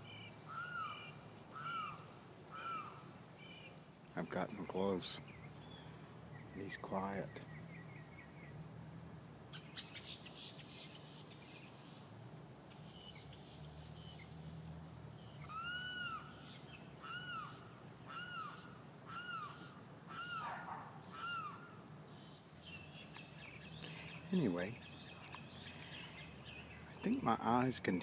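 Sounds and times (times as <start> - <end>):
bird call notes: 0.0 - 3.9, 15.2 - 27.6
bird chattering: 15.4 - 28.0.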